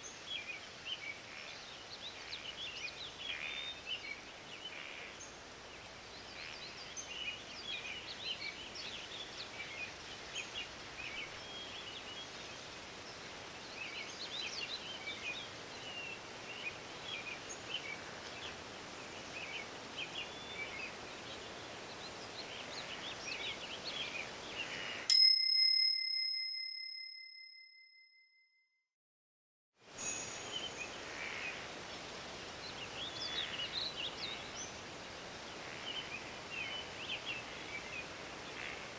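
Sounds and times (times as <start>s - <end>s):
birds chirping: 0.0s - 25.1s, 30.0s - 38.9s
bright bell ding: 25.1s - 28.2s, 29.9s - 30.9s
steady hiss: 29.8s - 38.9s.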